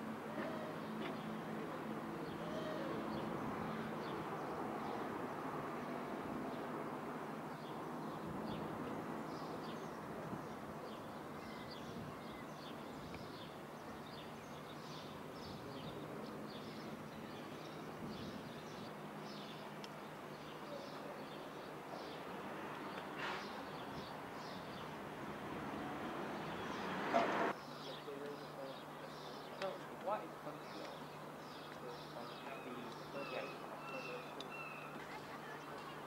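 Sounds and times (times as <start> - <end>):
small birds chirping: 7.5 - 25.0, 25.7 - 36.0.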